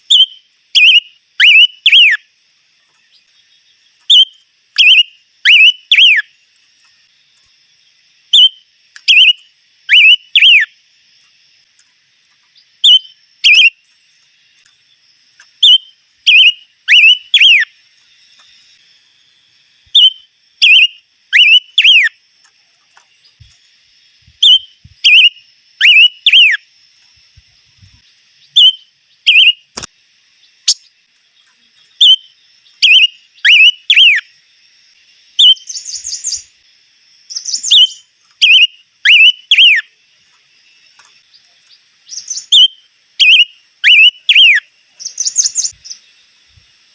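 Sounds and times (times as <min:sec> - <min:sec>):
songbird whistling phrases: 0:00.0 - 0:02.2, 0:04.1 - 0:06.3, 0:08.4 - 0:10.7, 0:12.8 - 0:13.8, 0:15.6 - 0:17.7, 0:19.9 - 0:22.2, 0:24.4 - 0:26.6, 0:28.4 - 0:29.7, 0:32.0 - 0:34.3, 0:35.4 - 0:36.5, 0:37.3 - 0:39.9, 0:42.1 - 0:46.0
faint steady high buzz: 0:00.0 - 0:46.9
sharp click: 0:29.7 - 0:29.9.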